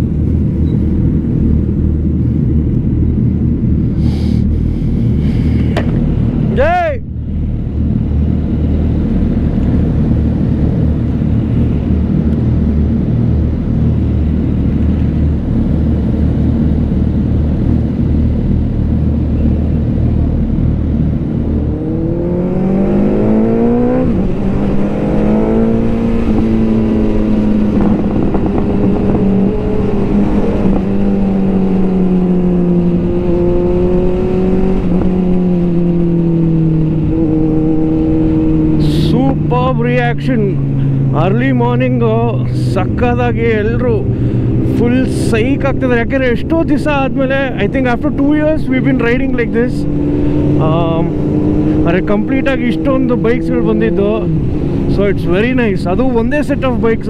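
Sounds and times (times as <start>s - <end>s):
wind noise: 0.0s - 57.0s
motorcycle engine revving: 15.2s - 57.0s.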